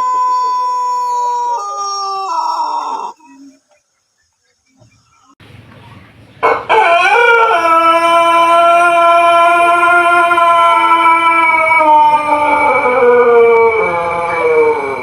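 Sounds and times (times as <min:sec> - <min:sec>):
rooster crowing: 0:00.0 - 0:03.4, 0:06.4 - 0:15.0.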